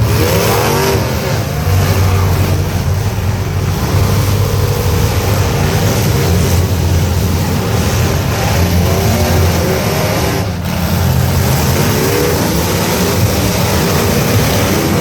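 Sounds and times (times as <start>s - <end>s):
truck engines revving: 0.0s - 15.0s.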